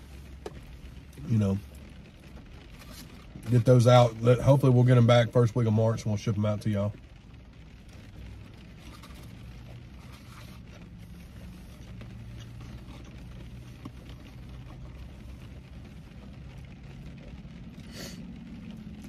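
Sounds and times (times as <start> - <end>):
car engine idling: 0.0 - 19.0
food packaging rustling: 8.7 - 16.4.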